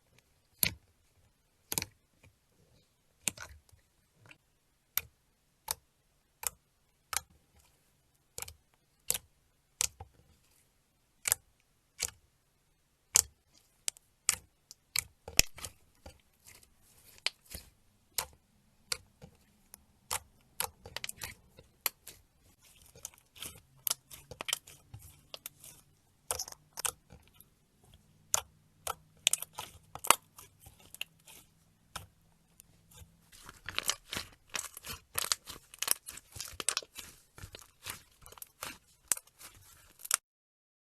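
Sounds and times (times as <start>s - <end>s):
slime clicking and popping: 13.1s - 27.4s, 28.3s - 40.2s.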